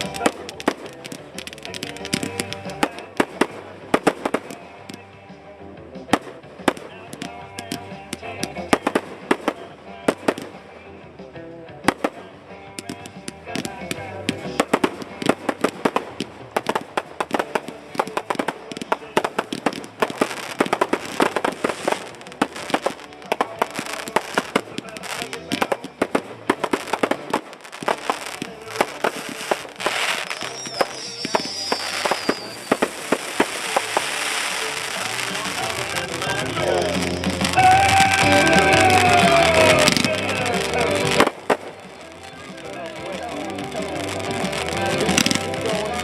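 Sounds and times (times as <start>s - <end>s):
fireworks exploding: 0.0s - 46.0s
music playing: 0.0s - 46.0s
high wavering whistle: 30.2s - 32.9s.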